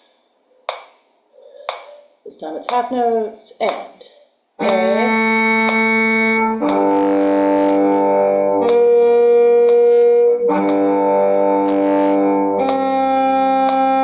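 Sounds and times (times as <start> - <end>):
faint metronome clicks: 4.6 - 14.0.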